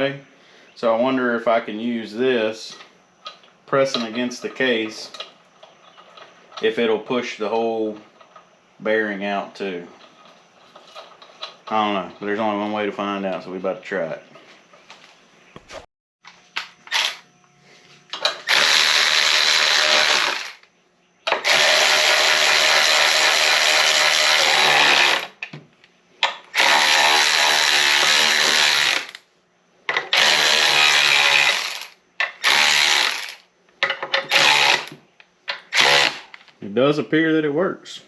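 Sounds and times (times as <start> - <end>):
impact wrench bursts: 16.8 - 17.2, 18.2 - 20.6, 21.3 - 25.4, 26.2 - 29.2, 30.0 - 33.4, 34.2 - 35.0, 35.6 - 36.3.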